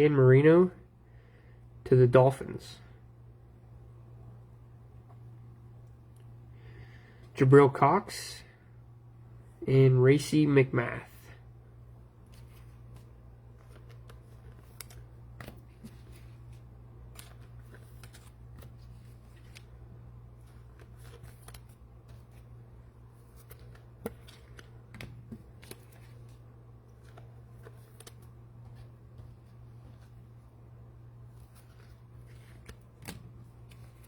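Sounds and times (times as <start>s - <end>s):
steady low hum: 0.0s - 34.0s
cards and wrappers rustling: 12.2s - 34.0s.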